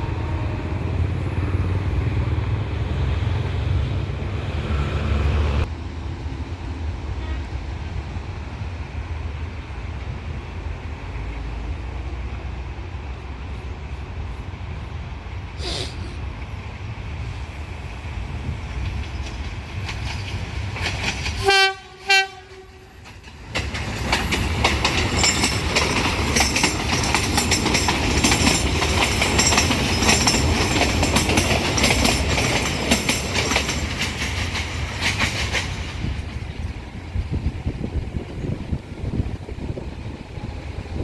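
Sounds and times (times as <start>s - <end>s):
train rumbling: 0.0s - 41.0s
train horn blasts: 7.1s - 7.6s, 21.4s - 23.0s
train wheels clattering: 18.4s - 38.8s.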